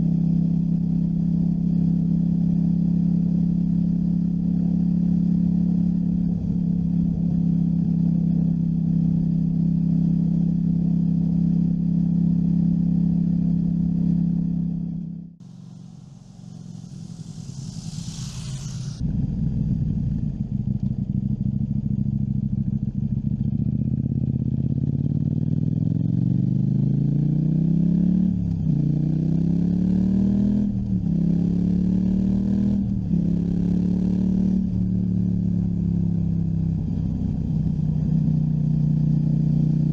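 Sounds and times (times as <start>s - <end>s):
motorcycle engine running: 0.0s - 39.9s
high hiss: 15.4s - 19.0s.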